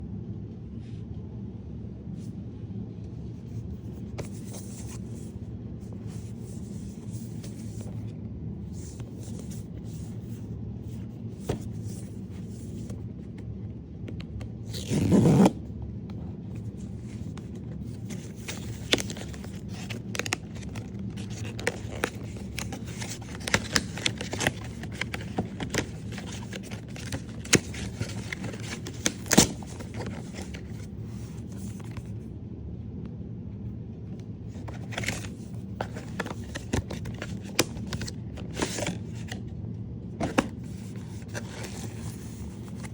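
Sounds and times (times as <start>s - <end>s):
low steady hum: 0.0s - 42.9s
packaging ripping: 14.7s - 15.6s, 17.3s - 30.9s
packaging crinkling: 17.1s - 32.0s, 34.6s - 39.4s.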